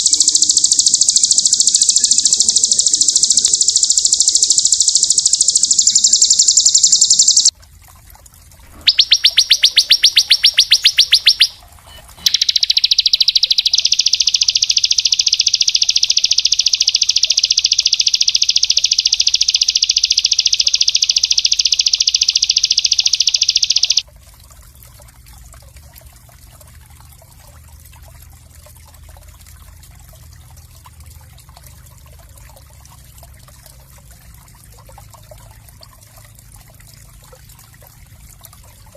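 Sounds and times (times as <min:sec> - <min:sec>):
songbird trilling: 0:00.0 - 0:07.5, 0:08.7 - 0:24.0.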